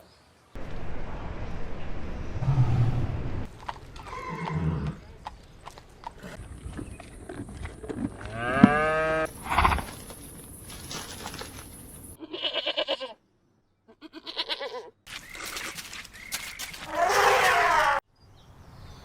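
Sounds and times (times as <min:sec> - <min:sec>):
goats bleating: 0:12.2 - 0:13.2, 0:13.9 - 0:14.9.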